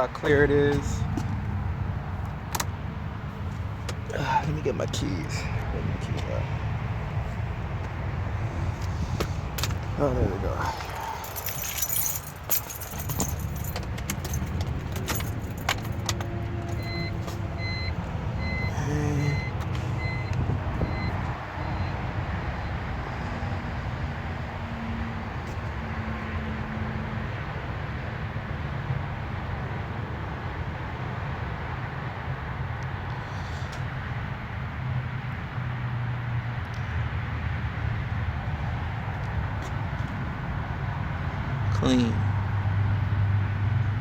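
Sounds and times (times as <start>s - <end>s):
car keys jangling: 10.6s - 17.0s
car warning chime beeping: 16.7s - 22.0s.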